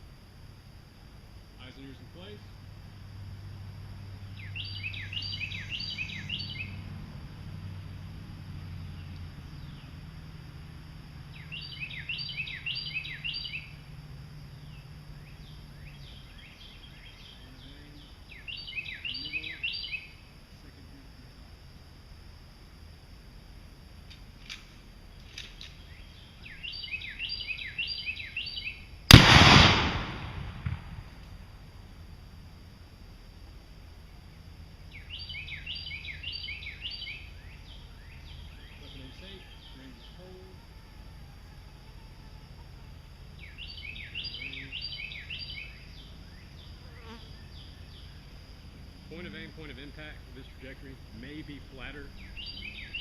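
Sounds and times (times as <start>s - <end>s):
songbird chirping: 0.0s - 31.0s, 33.3s - 53.0s
low hum: 0.0s - 53.0s
low outdoor rumble: 0.0s - 53.0s.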